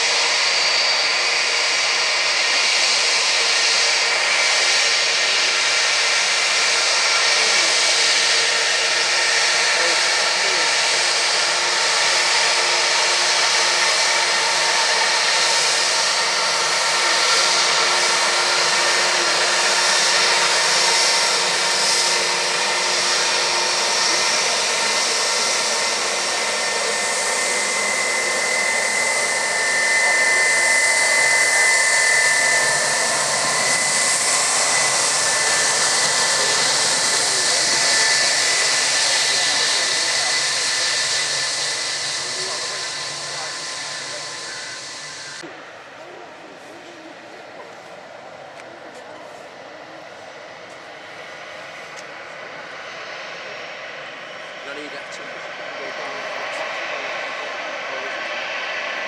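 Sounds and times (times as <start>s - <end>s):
jet engines rushing hiss: 0.0s - 59.0s
turbine whine: 0.0s - 59.0s.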